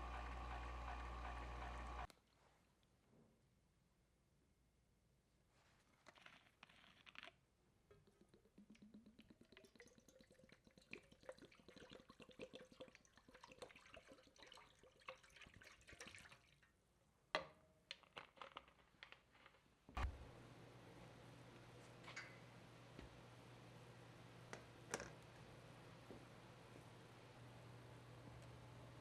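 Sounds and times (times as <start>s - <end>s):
liquid pouring into container: 7.9s - 16.8s.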